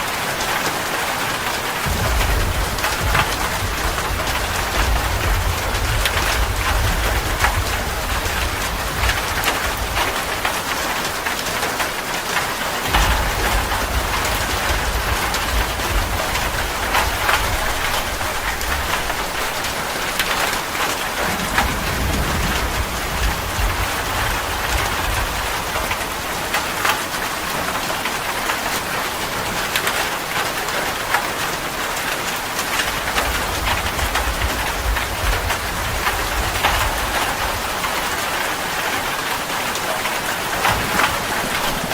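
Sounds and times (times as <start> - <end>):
rain on hard surfaces: 0.0 - 41.9
low rumble: 1.8 - 10.2, 12.9 - 19.5.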